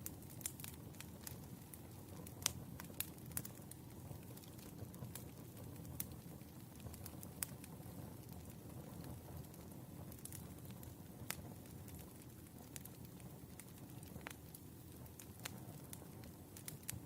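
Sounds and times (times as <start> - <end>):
fire crackling pops: 0.0 - 17.0
low rumble of fire: 0.0 - 17.0.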